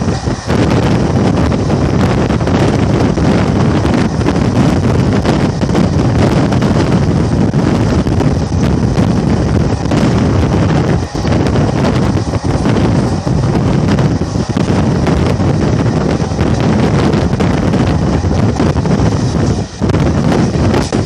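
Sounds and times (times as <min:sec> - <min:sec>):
train wheels running on track: 0:00.0 - 0:21.0
wind buffeting microphone: 0:00.0 - 0:21.0.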